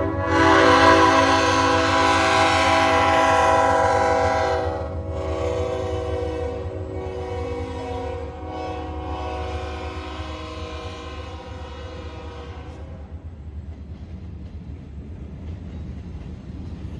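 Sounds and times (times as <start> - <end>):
locomotive air horn: 0.0 - 13.2
train rumble: 0.0 - 16.9.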